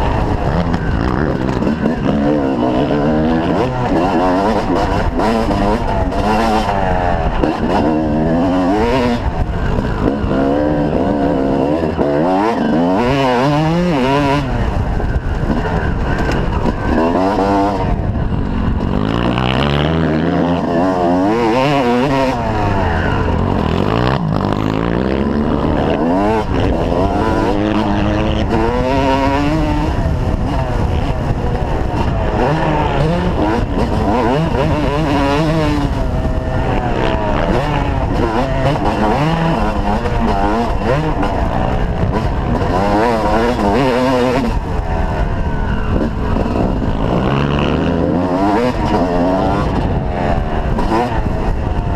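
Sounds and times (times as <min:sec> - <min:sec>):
motocross bikes revving: 0:00.0 - 0:51.9.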